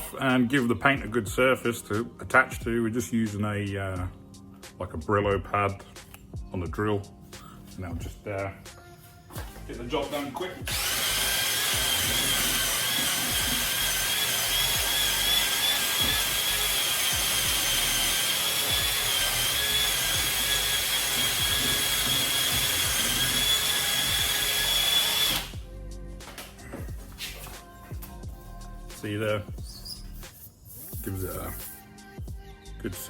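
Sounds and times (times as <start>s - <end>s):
electric drill whining: 10.1s - 25.6s.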